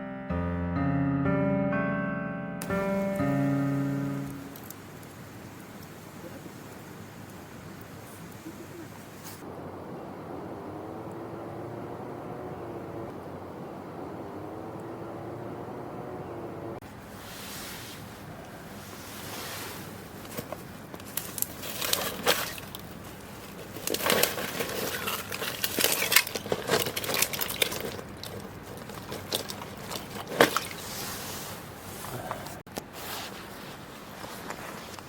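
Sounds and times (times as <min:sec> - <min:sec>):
faint steady hiss: 0:02.6 - 0:24.8
rustling: 0:07.8 - 0:09.5, 0:16.8 - 0:35.0.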